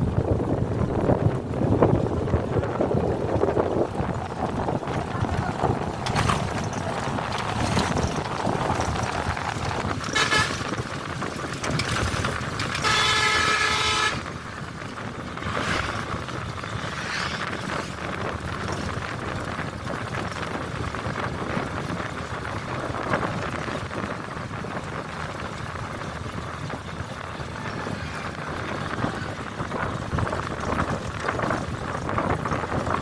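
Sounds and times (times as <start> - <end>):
bus travelling along road: 0.0 - 33.0
vehicle horn honking: 10.1 - 10.9, 12.7 - 14.4.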